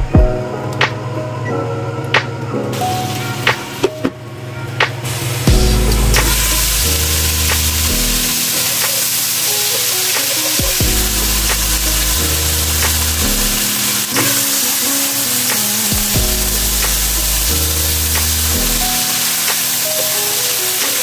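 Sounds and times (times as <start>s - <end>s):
ticking beat: 4.8s - 21.0s
food sizzling in a pan: 5.1s - 21.0s
background music with bass: 5.4s - 9.0s, 10.2s - 19.9s.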